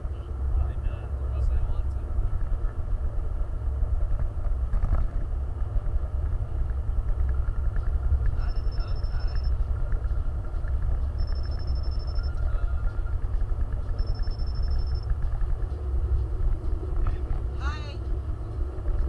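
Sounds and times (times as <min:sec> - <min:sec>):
vehicle engine rumble: 0:00.0 - 0:19.0
high rapid beeping: 0:08.4 - 0:09.7, 0:11.1 - 0:13.0, 0:13.9 - 0:15.2.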